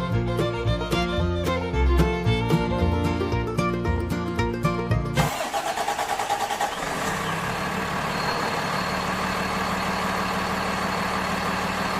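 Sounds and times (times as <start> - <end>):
engine idling: 5.2 - 11.9.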